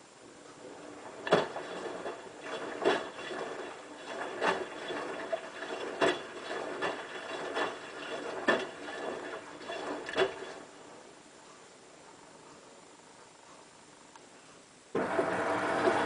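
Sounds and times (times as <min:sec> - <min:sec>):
washing machine drum tumbling: 0:00.9 - 0:10.7.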